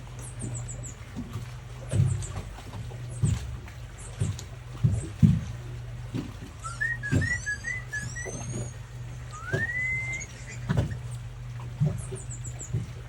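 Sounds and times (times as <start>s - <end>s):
low steady hum: 0.0s - 13.0s
dull thumps: 6.2s - 8.4s
whistling: 6.6s - 11.0s.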